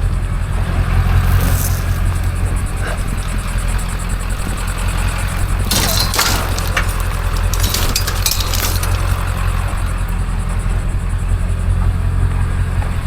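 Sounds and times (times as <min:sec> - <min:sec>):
vehicle engine rumble: 0:00.0 - 0:13.0
clinking and clattering: 0:01.2 - 0:10.9.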